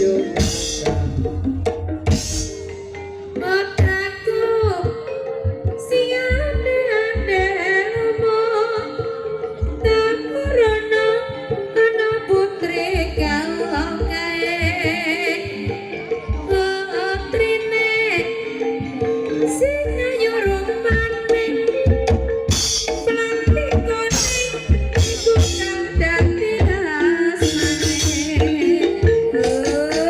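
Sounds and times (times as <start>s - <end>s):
person singing with vibrato: 23.0s - 30.0s.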